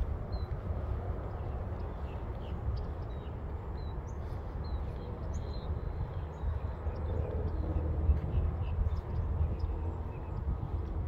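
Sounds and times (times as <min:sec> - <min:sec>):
small birds chirping: 0:00.0 - 0:11.0
steady low rumble: 0:00.0 - 0:11.0.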